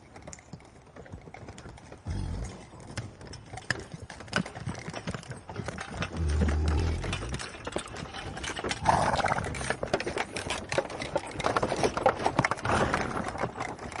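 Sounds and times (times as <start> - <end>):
hooves clattering: 0.0 - 14.0
horse breathy snort: 8.8 - 9.8.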